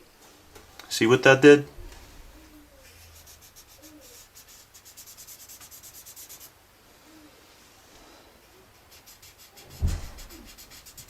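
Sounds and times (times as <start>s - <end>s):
pencil scratching on paper: 2.8s - 6.5s, 8.8s - 11.0s.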